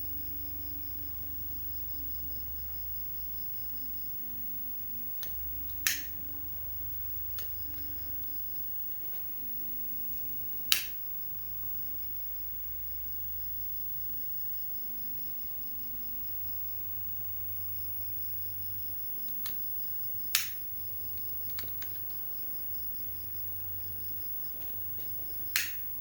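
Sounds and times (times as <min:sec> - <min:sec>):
sharp clicks: 0:05.2 - 0:06.1, 0:10.7 - 0:11.0, 0:20.3 - 0:20.6, 0:25.5 - 0:25.9
insects chirping: 0:18.7 - 0:26.0.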